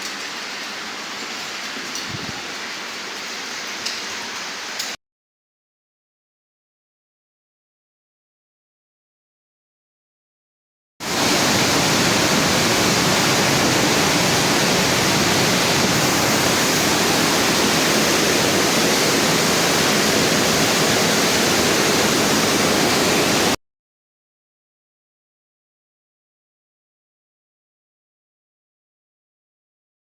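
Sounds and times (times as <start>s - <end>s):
water rushing through cave: 11.0s - 23.6s.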